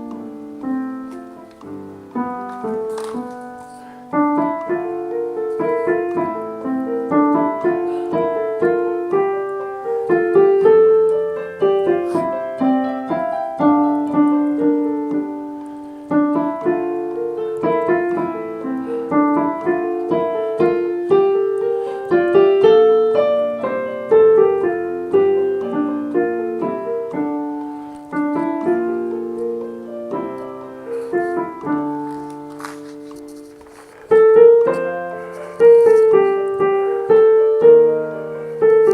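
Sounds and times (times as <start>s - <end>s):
piano music: 0.0s - 38.9s.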